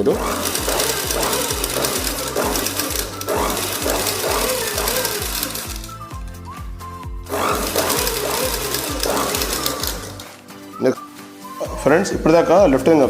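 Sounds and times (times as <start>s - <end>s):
sewing machine stitching: 0.0s - 6.2s, 7.3s - 10.4s
background music with steady beat: 0.0s - 13.0s.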